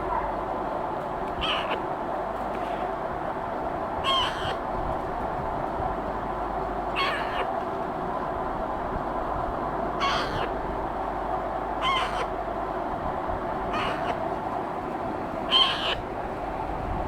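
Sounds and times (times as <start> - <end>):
steady background noise: 0.0 - 17.0
parakeet chick squawking: 1.4 - 1.8, 4.0 - 4.6, 7.0 - 7.5, 10.0 - 10.5, 11.8 - 12.3, 13.7 - 14.2, 15.5 - 16.0.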